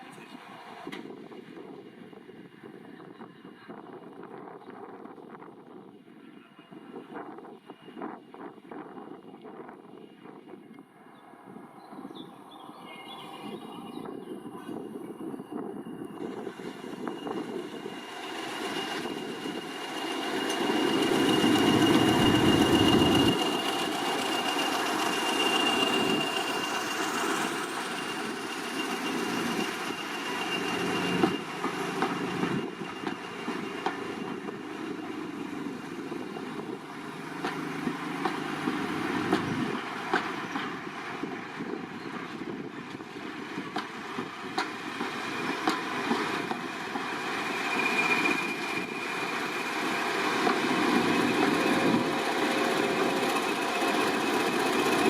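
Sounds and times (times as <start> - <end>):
train running on track: 0.0 - 55.0
high-pitched squeal: 13.2 - 41.3, 46.2 - 55.0.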